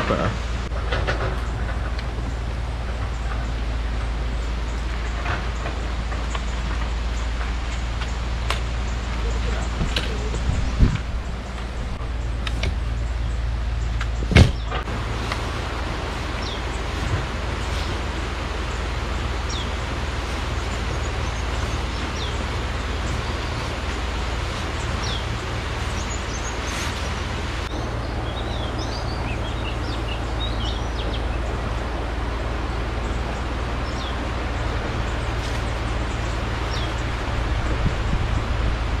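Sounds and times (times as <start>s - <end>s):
low rumble: 0.0s - 39.0s
bird chirps: 24.5s - 31.7s.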